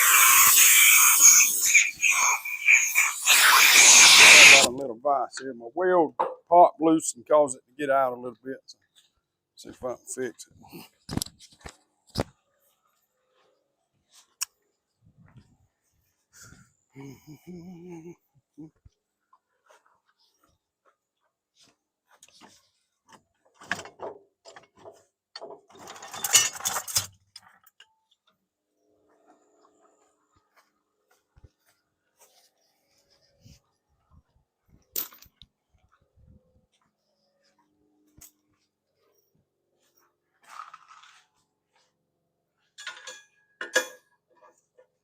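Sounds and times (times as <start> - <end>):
loud metal rasping: 0.0 - 4.7
metal clicking and scraping: 23.6 - 27.9.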